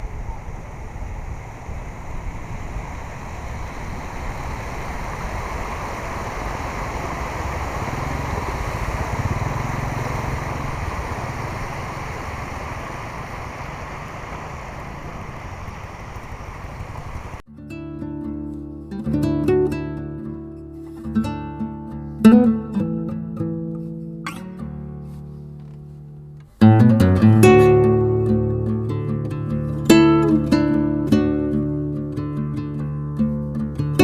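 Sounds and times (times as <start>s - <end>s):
river water rushing: 0.3s - 17.4s.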